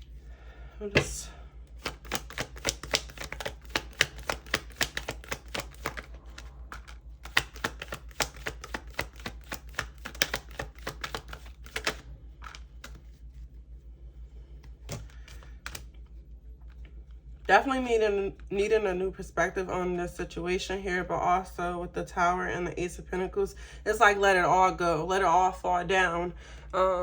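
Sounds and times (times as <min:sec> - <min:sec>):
cards being shuffled: 0:01.7 - 0:13.6, 0:14.4 - 0:16.9.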